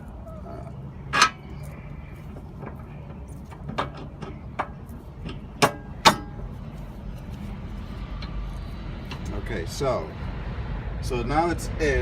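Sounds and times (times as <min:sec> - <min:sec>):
metal knocks and clunks: 0:02.3 - 0:06.6.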